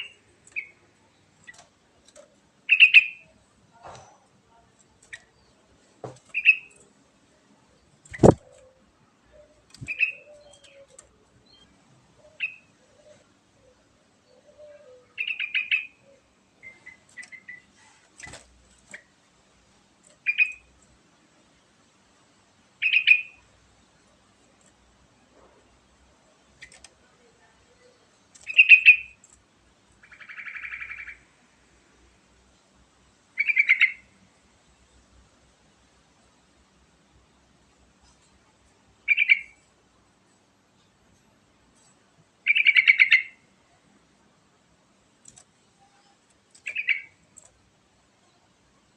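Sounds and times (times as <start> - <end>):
bird chirping: 0.0 - 1.7, 2.6 - 5.6, 6.3 - 6.9, 7.8 - 19.1, 20.2 - 20.8, 22.8 - 23.5, 26.3 - 29.3, 30.0 - 31.3, 33.4 - 34.2, 39.0 - 39.7, 41.8 - 43.8, 45.3 - 47.6.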